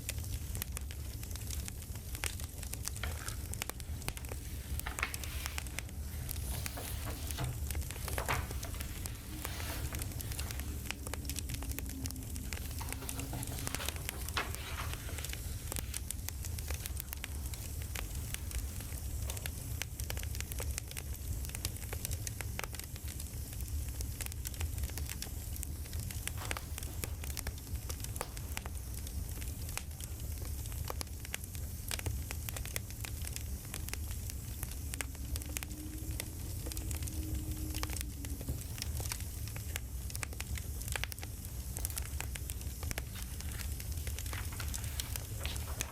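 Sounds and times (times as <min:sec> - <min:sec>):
campfire crackling: 0:00.0 - 0:45.9.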